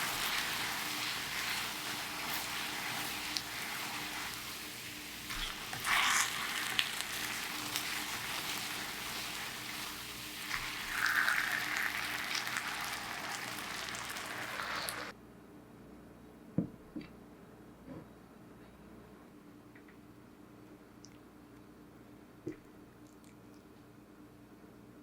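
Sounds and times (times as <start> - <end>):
meat sizzling in a frying pan: 0.0 - 15.1.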